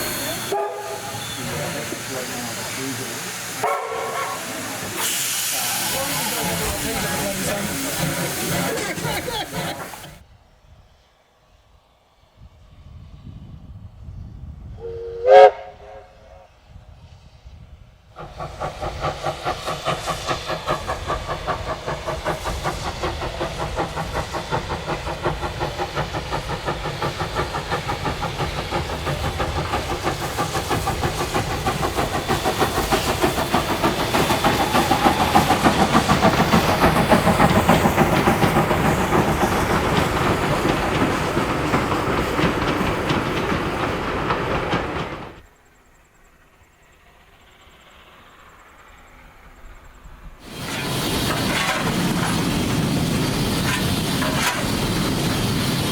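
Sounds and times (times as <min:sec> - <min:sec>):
rail clatter: 0:00.0 - 0:10.2, 0:18.2 - 0:45.5, 0:50.4 - 0:55.9
steam hissing: 0:00.0 - 0:55.9
steam locomotive exhaust beats: 0:00.0 - 0:55.9.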